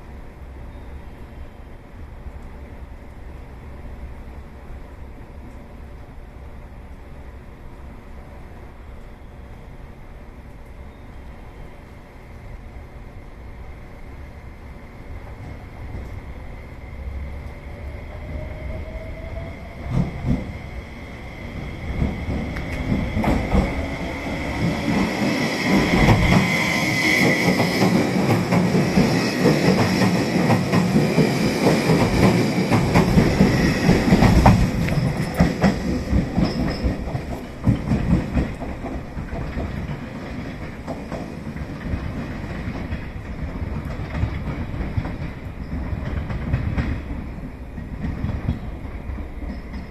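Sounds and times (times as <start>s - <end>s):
train passing: 0.0s - 49.9s
clacks over rail joints: 27.2s - 49.9s.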